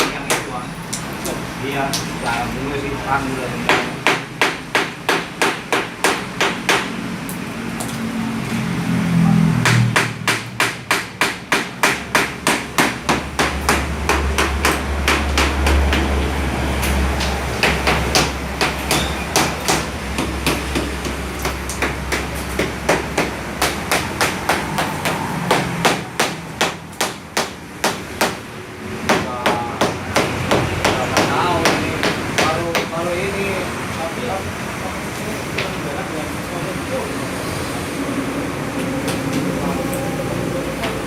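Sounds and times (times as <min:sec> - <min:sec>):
hammer striking: 0:03.7 - 0:07.0, 0:09.6 - 0:16.1, 0:17.2 - 0:28.4, 0:29.1 - 0:32.9.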